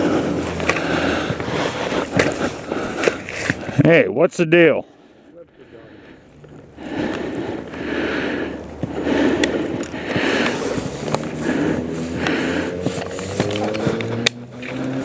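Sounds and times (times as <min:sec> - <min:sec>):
saw cutting a limb: 0:10.2 - 0:15.0.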